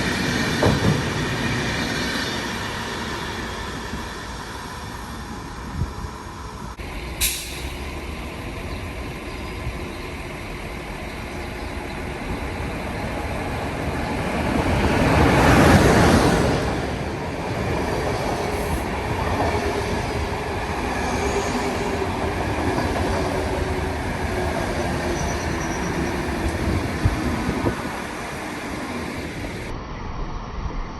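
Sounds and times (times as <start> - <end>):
passenger train passing: 0.0 - 30.9
sharp clank: 7.2 - 7.8.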